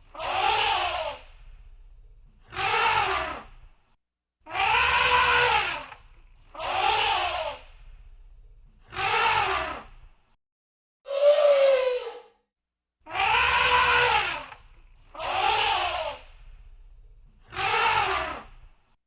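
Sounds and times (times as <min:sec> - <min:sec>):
elephant trumpeting: 0:04.5 - 0:05.9, 0:13.1 - 0:14.5.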